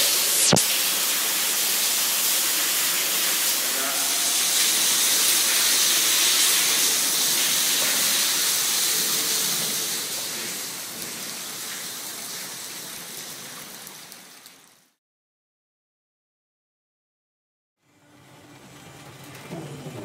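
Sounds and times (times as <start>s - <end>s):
heavy rain and pouring water: 0.0s - 15.0s.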